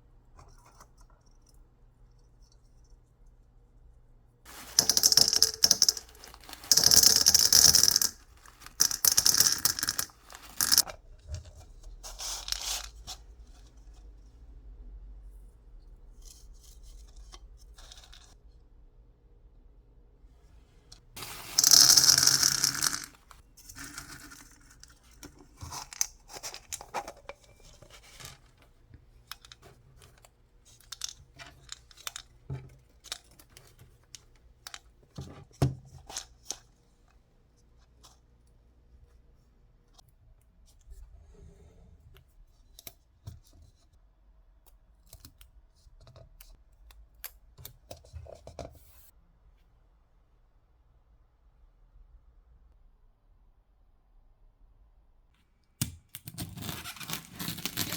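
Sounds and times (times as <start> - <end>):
clicks and rustles of handling: 4.5 - 14.0, 20.9 - 37.1.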